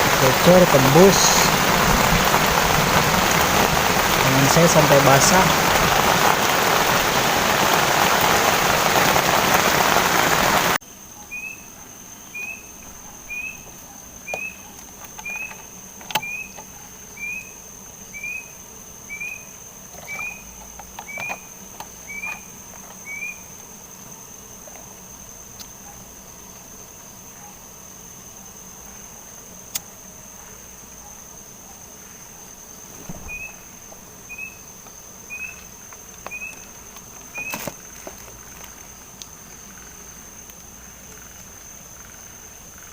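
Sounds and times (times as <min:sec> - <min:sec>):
heavy rain on a tent: 0:00.0 - 0:10.8, 0:35.3 - 0:40.1
cricket drone: 0:00.0 - 0:42.9.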